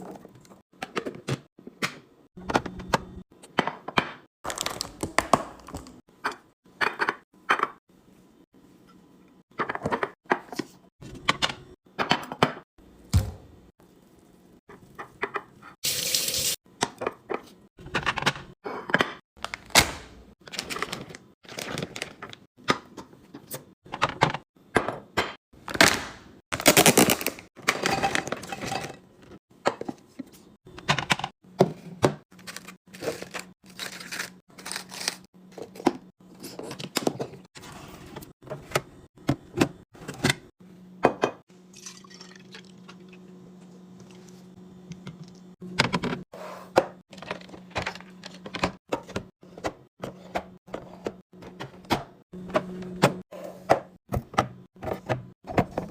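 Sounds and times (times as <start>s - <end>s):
food containers clicking and clattering: 26.6s - 30.0s, 46.8s - 55.9s.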